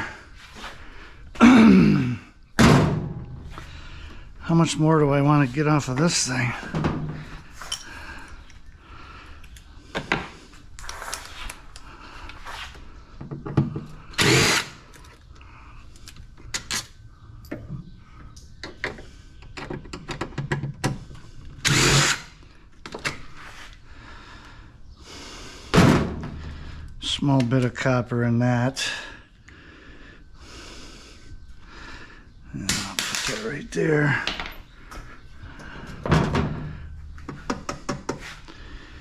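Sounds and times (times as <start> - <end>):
power drill running: 14.2 - 14.8, 21.6 - 22.3.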